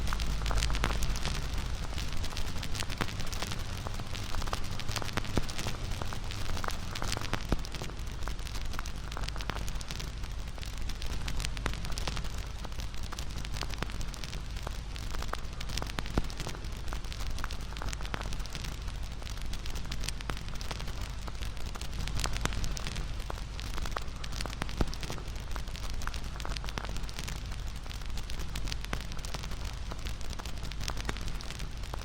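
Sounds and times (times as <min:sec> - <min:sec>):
low rush of flames: 0:00.0 - 0:07.4
campfire crackling: 0:00.0 - 0:32.0
loud fire pops: 0:00.0 - 0:32.0.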